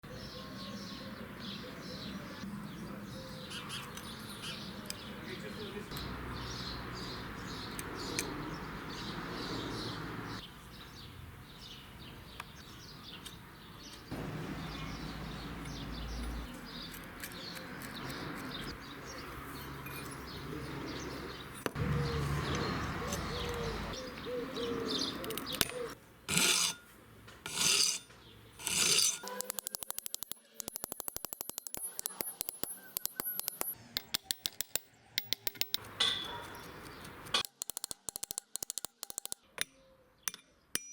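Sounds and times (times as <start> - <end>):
rubbing and scraping: 26.3 - 29.7.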